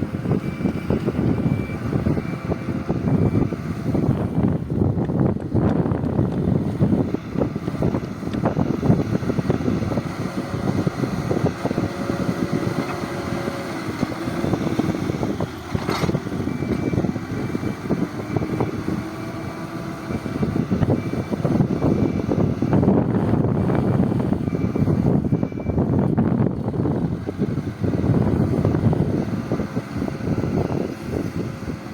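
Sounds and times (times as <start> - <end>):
heavy diesel engine running: 0.0 - 31.9
rattling and clanking: 13.8 - 17.2.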